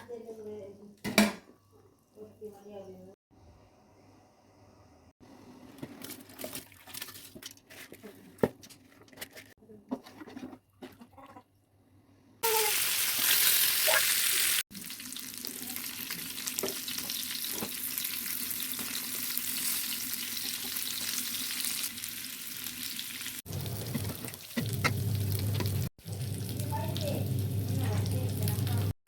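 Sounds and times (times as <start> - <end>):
food sizzling in hot oil: 12.4 - 29.0.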